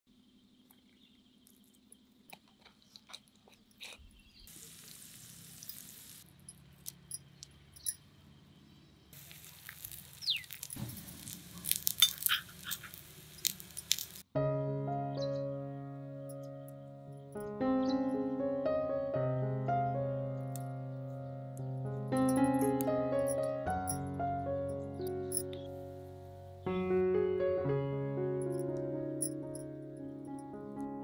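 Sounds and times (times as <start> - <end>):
sharp crackles and clicks: 0.6 - 8.0, 9.1 - 14.3, 21.6 - 24.0
onions sizzling in hot oil: 4.4 - 6.2, 9.2 - 14.2
oil sizzling in a pan: 4.5 - 6.3, 9.2 - 14.3.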